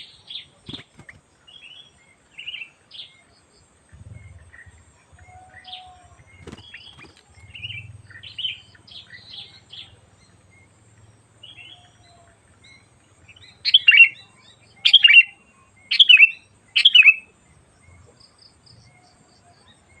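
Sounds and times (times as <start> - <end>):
bulbul chirps and sharp calls: 11.4 - 17.3.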